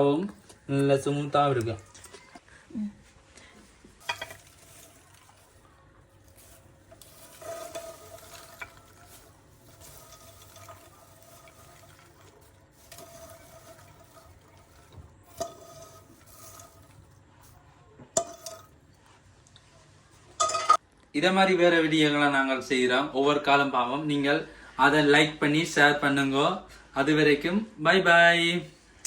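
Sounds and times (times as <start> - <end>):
popcorn stirred in a pan: 3.2 - 20.6.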